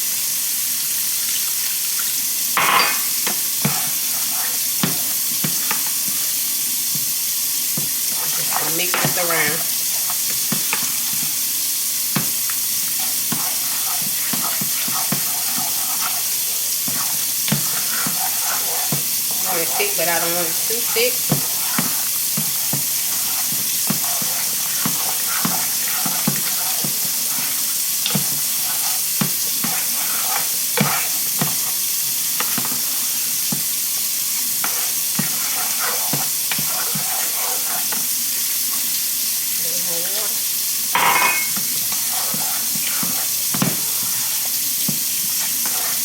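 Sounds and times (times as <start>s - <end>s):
gravy sizzling and bubbling: 0.0s - 46.0s
utensil scraping a pan: 2.6s - 5.0s, 8.1s - 11.3s, 12.2s - 33.6s, 34.4s - 38.9s, 41.0s - 46.0s.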